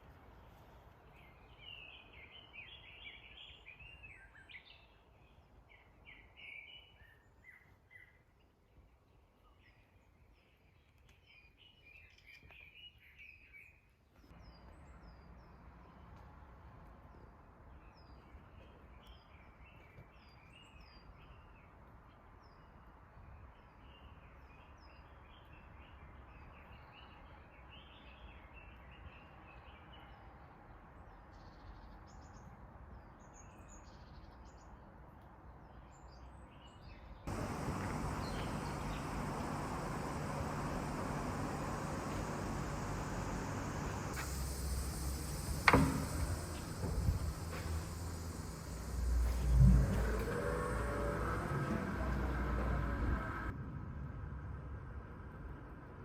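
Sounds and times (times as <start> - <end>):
outdoor background noise: 0.0 - 56.0
small birds chirping: 35.7 - 51.4
steady low rumble: 37.3 - 55.2.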